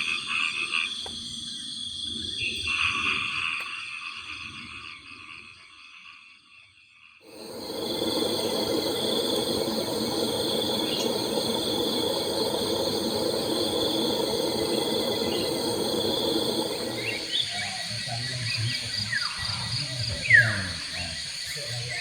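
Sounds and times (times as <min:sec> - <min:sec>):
birds chirping: 0:07.3 - 0:20.7
frogs croaking: 0:07.3 - 0:22.0
high insect trills: 0:07.3 - 0:22.0.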